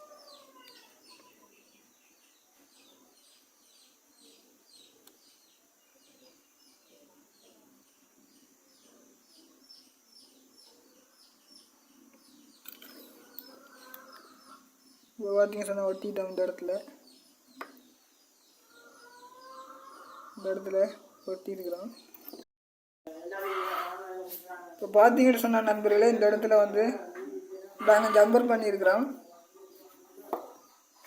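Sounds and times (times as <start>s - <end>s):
bird chirping faintly: 0.0s - 22.5s.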